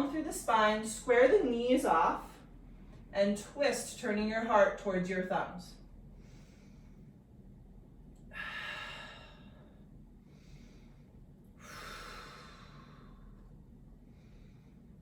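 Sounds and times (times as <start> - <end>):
person breathing deeply: 6.1 - 7.2, 8.3 - 15.0.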